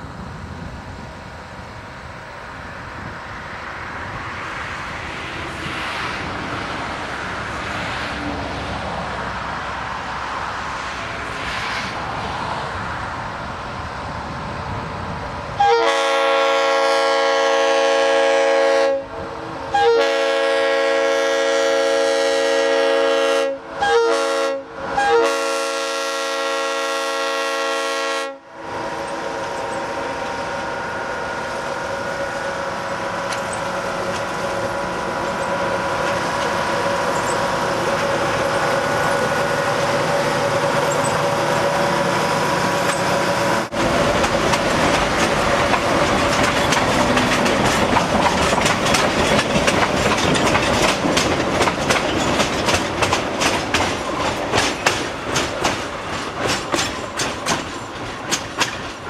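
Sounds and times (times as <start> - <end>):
diesel locomotive rumbling: 0.0 - 59.0
locomotive chime horn blasts: 15.6 - 28.6.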